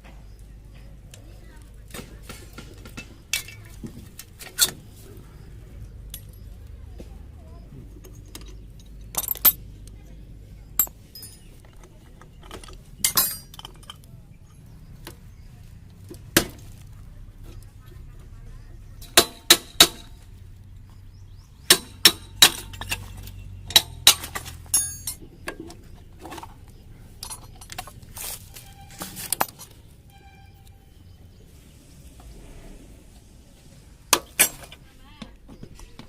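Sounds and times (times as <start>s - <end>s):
metal tools clinking: 2.4s - 5.1s, 6.0s - 6.7s, 7.8s - 9.7s, 10.7s - 14.7s, 21.7s - 30.8s, 34.1s - 34.8s.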